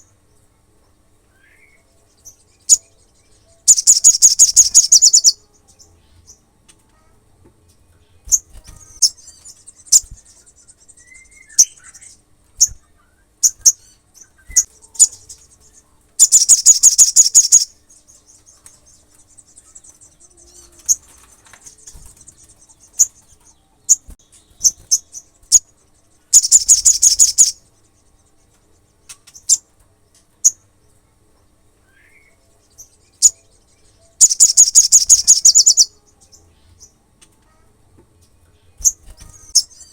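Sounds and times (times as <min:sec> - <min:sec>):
soft bird twittering: 0:01.3 - 0:06.4, 0:08.2 - 0:29.7, 0:31.8 - 0:37.6, 0:38.6 - 0:39.9
sharp high bird chips: 0:03.7 - 0:05.4, 0:08.3 - 0:12.8, 0:13.4 - 0:25.7, 0:26.3 - 0:27.7, 0:34.0 - 0:36.0, 0:38.8 - 0:39.9
bird fast high trills: 0:26.4 - 0:27.6.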